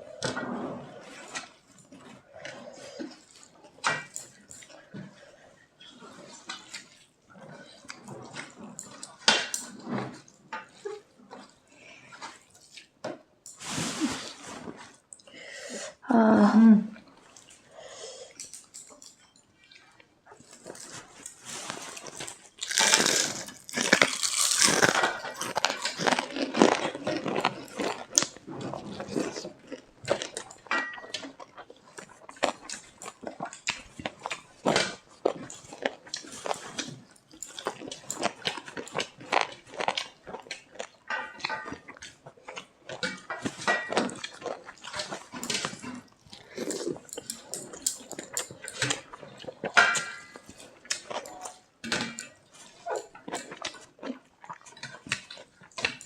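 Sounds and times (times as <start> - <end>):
person chewing food: 17.1 - 56.0.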